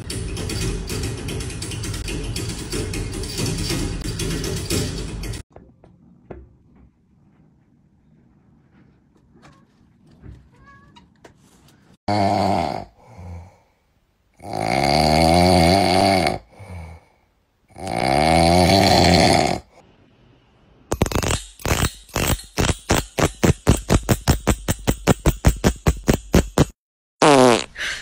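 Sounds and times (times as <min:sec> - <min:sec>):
kitten snoring: 0:12.1 - 0:13.5, 0:17.7 - 0:19.7.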